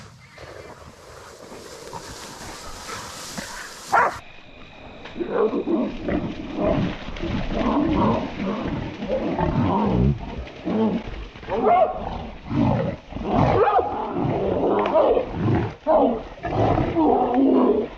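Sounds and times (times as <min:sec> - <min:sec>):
rustling: 0:00.3 - 0:04.2.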